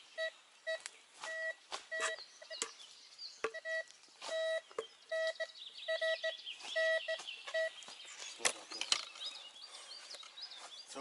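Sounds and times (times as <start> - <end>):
metal detector beeping: 0.2 - 2.7, 3.5 - 7.8.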